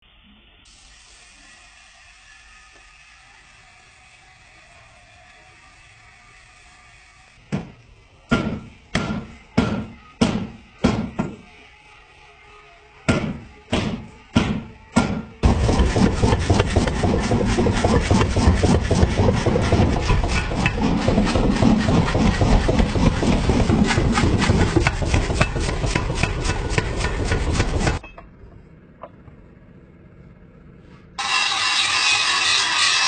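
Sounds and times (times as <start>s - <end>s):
hand tool rasping strokes: 13.3s - 28.0s, 31.2s - 33.0s.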